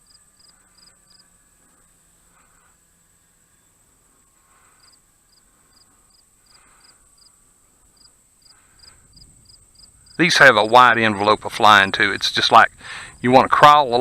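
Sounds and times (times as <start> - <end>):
cricket chirping: 0.0 - 1.5, 4.5 - 13.4
steady high-pitched hum: 0.0 - 14.0.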